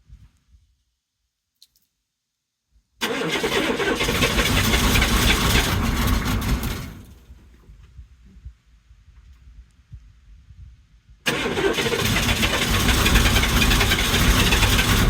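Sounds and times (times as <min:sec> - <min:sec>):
diesel engine cranking: 0:03.0 - 0:07.3, 0:11.3 - 0:15.0.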